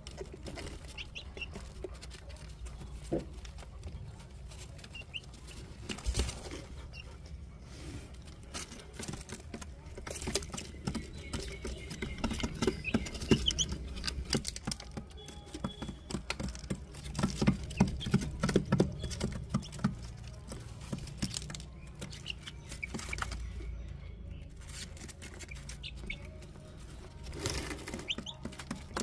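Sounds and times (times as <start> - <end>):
chicks tapping and scratching: 0.0 - 29.0
faint chick peeps: 0.1 - 29.0.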